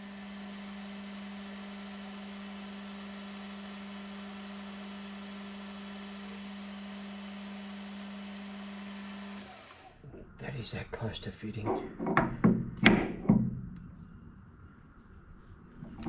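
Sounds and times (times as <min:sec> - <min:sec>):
metal lathe humming: 0:00.0 - 0:16.0.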